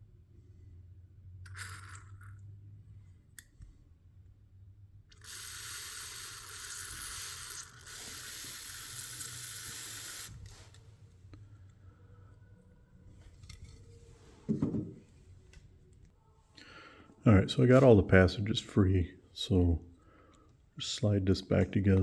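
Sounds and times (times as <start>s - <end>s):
pressurised air hiss: 5.2s - 10.9s.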